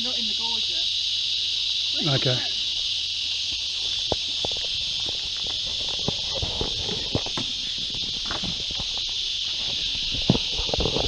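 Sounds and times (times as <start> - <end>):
insects chorus: 0.0 - 11.0
light knocks and scrapes: 4.1 - 11.0.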